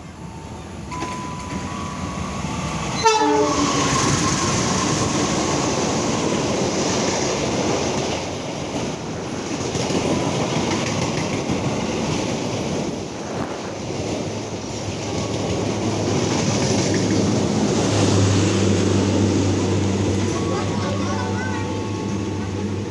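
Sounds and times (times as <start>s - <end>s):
carriages rushing and wheel clatter: 0.0s - 22.9s
locomotive horn: 1.4s - 4.7s, 17.9s - 22.9s.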